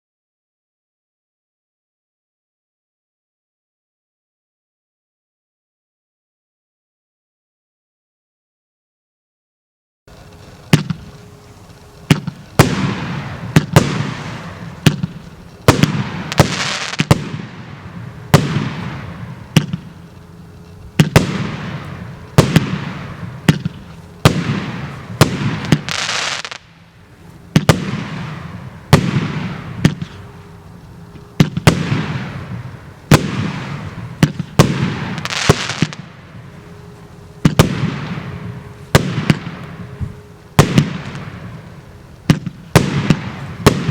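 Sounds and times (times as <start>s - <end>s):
crackling hiss: 10.1s - 43.9s
firework bangs: 10.1s - 43.9s.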